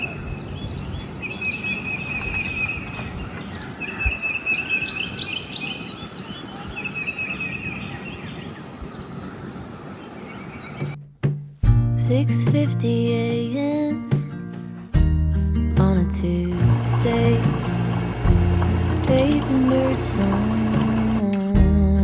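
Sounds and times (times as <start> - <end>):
birds chirping: 0.0 - 11.0, 16.5 - 21.2.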